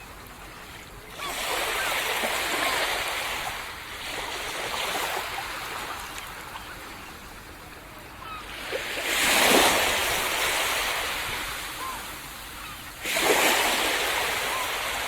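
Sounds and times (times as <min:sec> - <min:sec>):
sea waves washing onto beach: 0:08.2 - 0:15.0.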